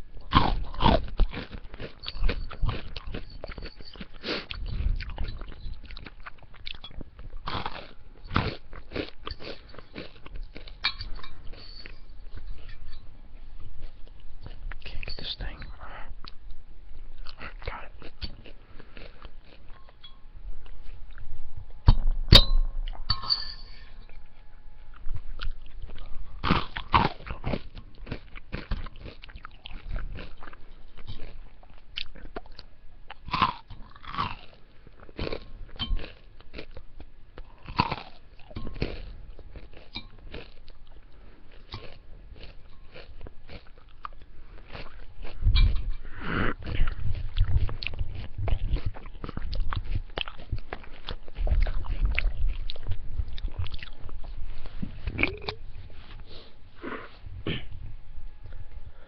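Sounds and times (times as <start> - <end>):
chewing and crunching food: 0.0 - 59.0.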